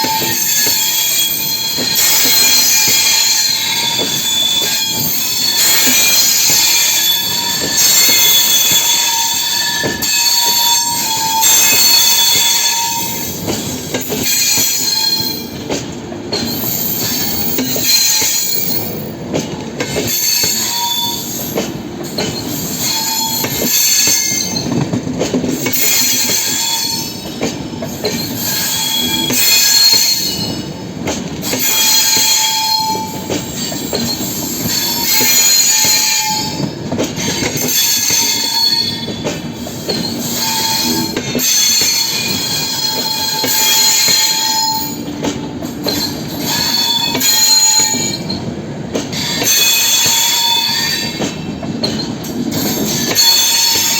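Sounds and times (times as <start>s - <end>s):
high-pitched wheel squeal: 0.0s - 13.3s, 20.1s - 21.5s, 28.1s - 30.6s, 31.6s - 39.2s, 45.8s - 48.4s
train coaches rolling on rails: 0.0s - 53.9s.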